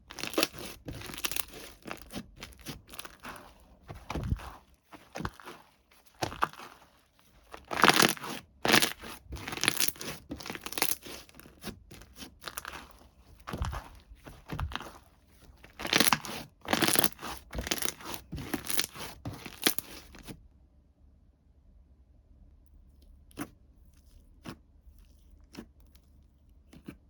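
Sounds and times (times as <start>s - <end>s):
plastic packaging crinkling: 0.0s - 20.3s.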